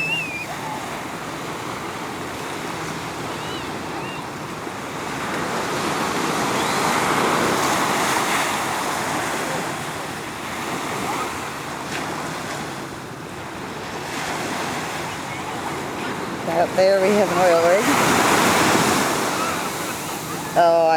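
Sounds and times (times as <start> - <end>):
surf washing onto beach: 0.0 - 20.9.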